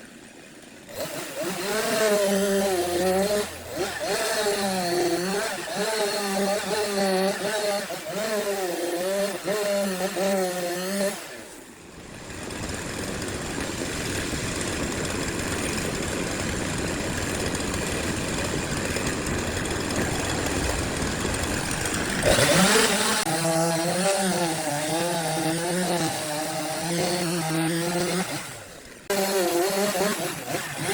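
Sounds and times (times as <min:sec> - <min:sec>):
power tool cutting wood: 0:00.0 - 0:30.9.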